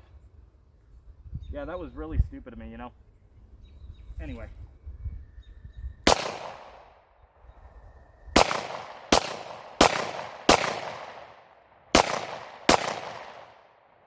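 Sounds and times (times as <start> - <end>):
gunshots with echo: 6.1 - 6.9, 8.4 - 13.8.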